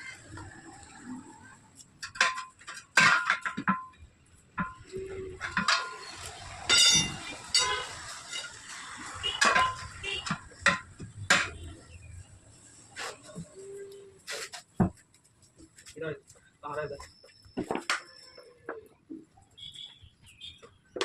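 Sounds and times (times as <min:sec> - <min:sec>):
metal tools clinking on wheel rim: 0:01.8 - 0:11.7.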